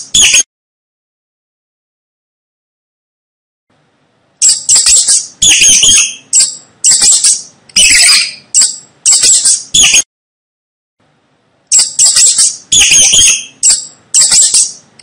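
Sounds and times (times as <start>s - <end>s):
mouse squeaking: 0.0s - 0.4s, 4.4s - 10.0s, 11.7s - 14.9s.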